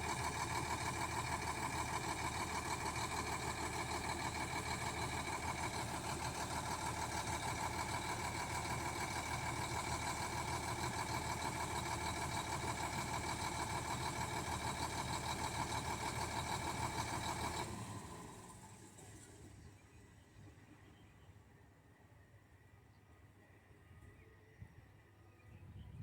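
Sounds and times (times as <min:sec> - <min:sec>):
bulldozer diesel engine idling: 0:00.0 - 0:19.7.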